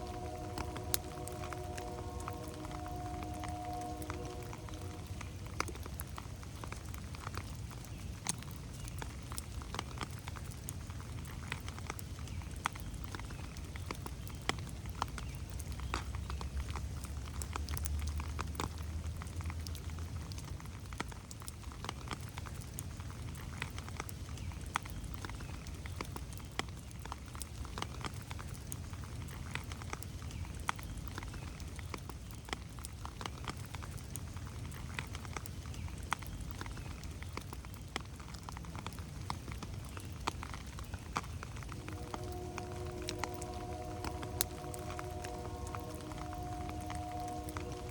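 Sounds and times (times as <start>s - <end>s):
low rumble: 0.0s - 6.4s, 41.6s - 47.9s
rain pattering on leaves: 0.0s - 47.9s.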